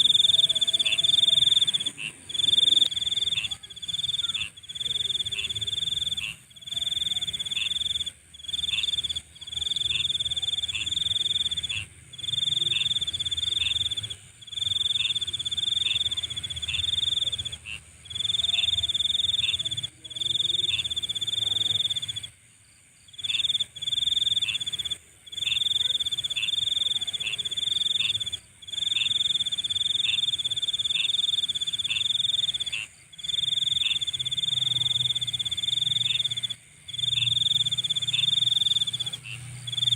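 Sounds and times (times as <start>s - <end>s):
high-pitched insect hum: 0.0s - 39.9s
loud high insect trill: 23.0s - 39.9s.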